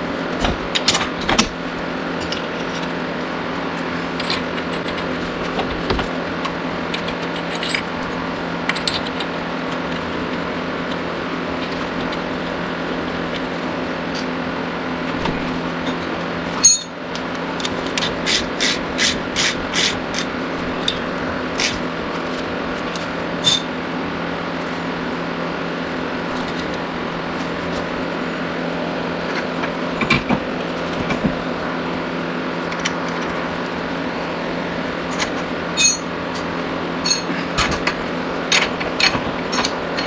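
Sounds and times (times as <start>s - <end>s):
steady mechanical hum: 0.0s - 40.0s
sharp metallic clinks: 16.6s - 17.0s, 35.8s - 36.1s.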